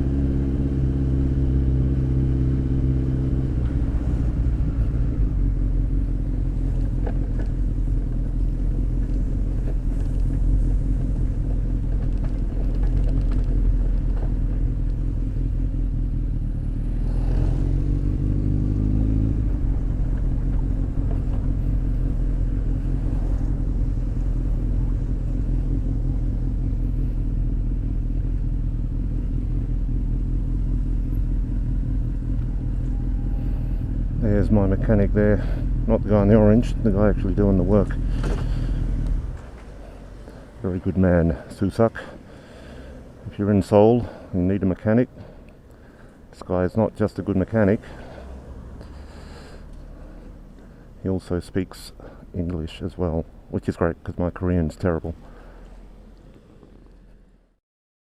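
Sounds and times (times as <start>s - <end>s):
motorcycle engine and exhaust: 0.0s - 57.6s
wind and road rumble: 0.0s - 57.6s.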